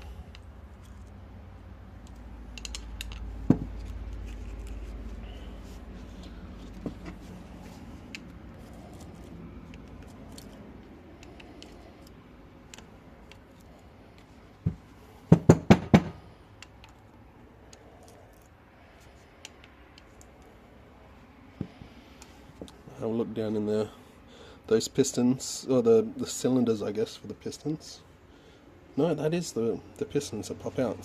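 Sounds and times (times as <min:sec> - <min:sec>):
light clicks of metal parts: 0:00.0 - 0:01.2, 0:01.9 - 0:14.9, 0:16.5 - 0:20.6
loud knocks: 0:14.7 - 0:16.2.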